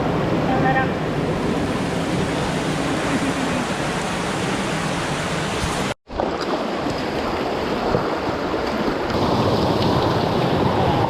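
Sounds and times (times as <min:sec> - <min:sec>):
mountain stream rushing: 0:00.0 - 0:11.0.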